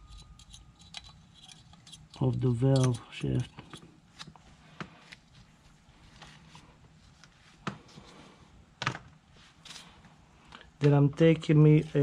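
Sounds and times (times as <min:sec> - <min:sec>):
metal hand tools clicking: 0:00.0 - 0:03.8.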